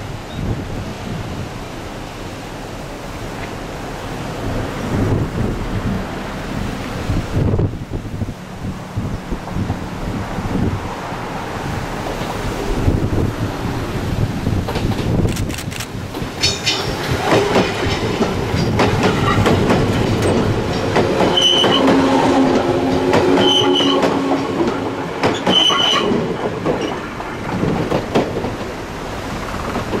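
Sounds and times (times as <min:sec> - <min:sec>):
train wheels clicking over rail joints: 0:14.5 - 0:30.0
high-pitched wheel squeals: 0:21.3 - 0:22.0, 0:23.3 - 0:24.2, 0:25.4 - 0:26.2.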